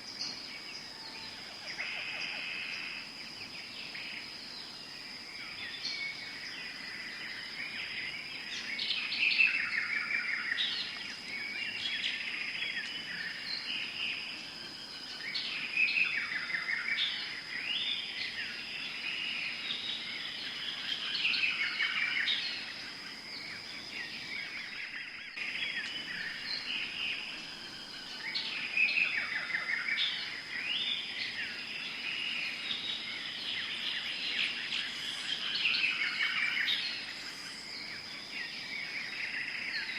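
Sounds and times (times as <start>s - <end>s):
birds chirping and calling: 0.0s - 4.8s, 15.0s - 39.9s.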